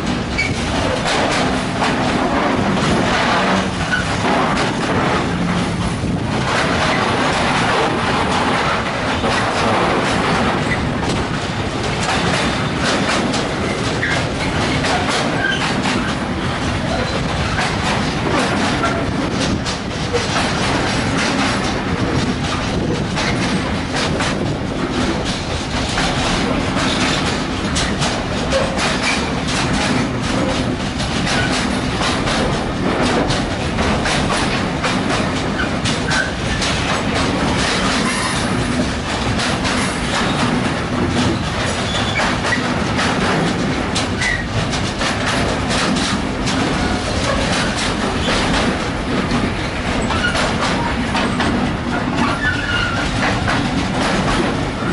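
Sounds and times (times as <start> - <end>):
train wheels clattering over rail joints: 0.0 - 54.9
train wheels squealing: 15.4 - 15.7, 52.2 - 53.1.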